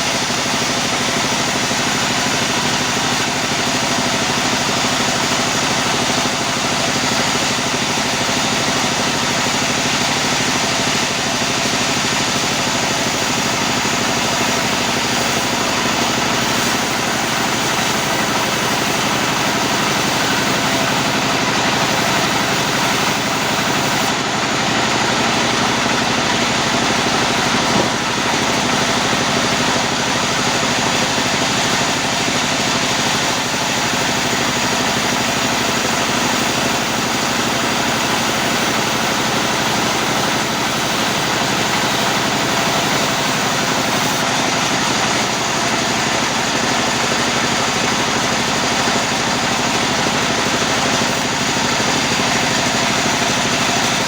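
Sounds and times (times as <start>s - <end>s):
sawmill machinery droning: 0.0s - 54.0s.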